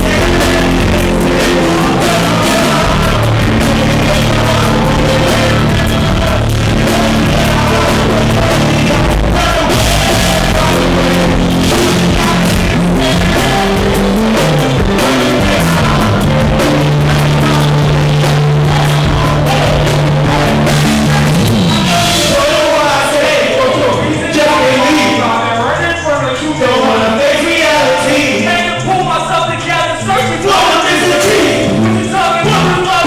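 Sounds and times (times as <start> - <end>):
live rock band playing: 0.0 - 23.3, 30.9 - 33.0
person singing: 0.0 - 33.0
long low bass note: 31.6 - 33.0.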